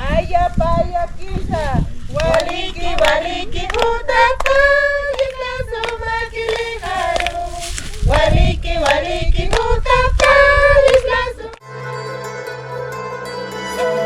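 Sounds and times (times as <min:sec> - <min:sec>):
voices singing a folk song: 0:00.0 - 0:14.0
hand clapping: 0:02.2 - 0:07.4, 0:08.1 - 0:11.6
plucked-string instrumental music: 0:11.6 - 0:14.0.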